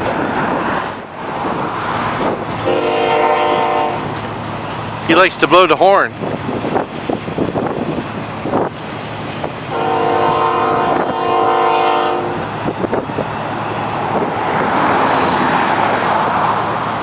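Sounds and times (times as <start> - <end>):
freight train rumbling past: 0.0 - 17.0
locomotive air horn chord: 2.6 - 4.1, 9.7 - 12.4.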